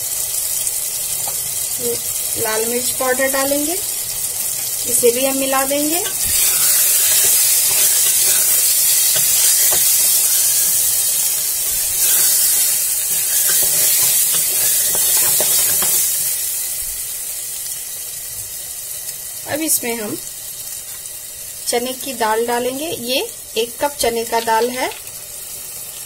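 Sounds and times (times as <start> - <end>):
food sizzling in hot oil: 0.0 - 26.0
spatula scraping and tapping pot: 6.0 - 10.8, 11.6 - 16.1.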